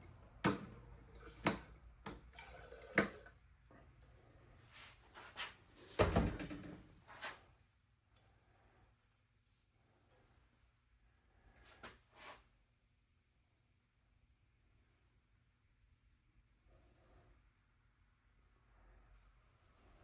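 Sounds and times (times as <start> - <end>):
objects knocking and clunking: 0.4 - 3.3, 6.0 - 6.9.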